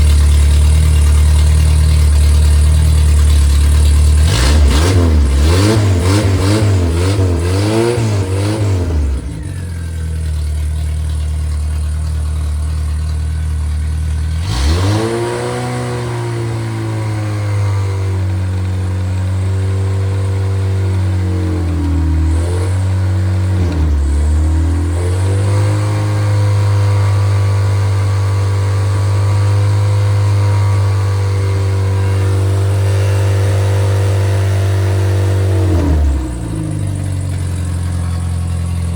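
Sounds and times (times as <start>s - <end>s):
car engine running and revving: 0.0s - 38.9s.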